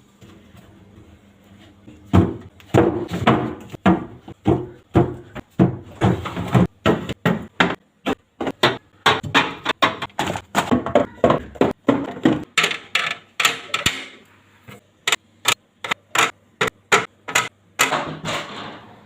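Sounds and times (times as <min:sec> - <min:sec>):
containers knocking on fridge shelves: 0:02.1 - 0:14.2.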